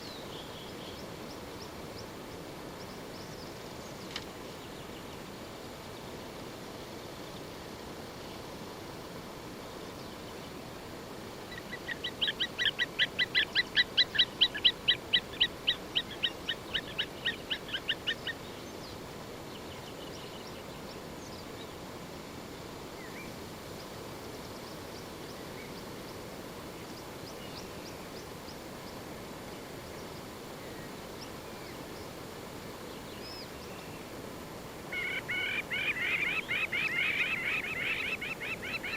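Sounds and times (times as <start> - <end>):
background hiss: 0.0 - 38.9
faint bird chirps: 34.9 - 38.9.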